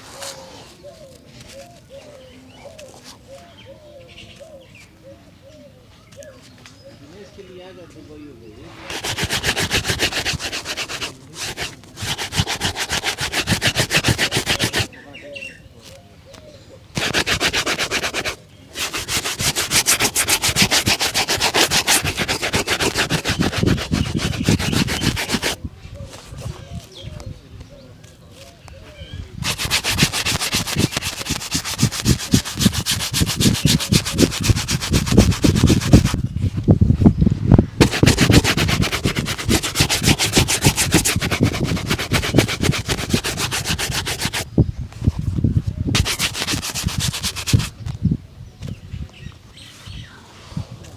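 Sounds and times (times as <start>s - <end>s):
shoe brush buffing leather: 8.8s - 14.9s, 17.0s - 25.6s, 29.4s - 36.2s, 37.8s - 44.5s, 46.0s - 47.8s.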